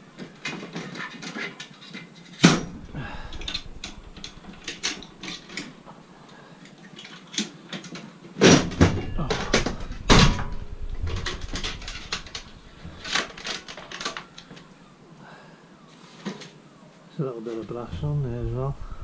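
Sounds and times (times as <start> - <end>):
scrap metal clinking and clanking: 0.1 - 6.0, 6.7 - 14.5.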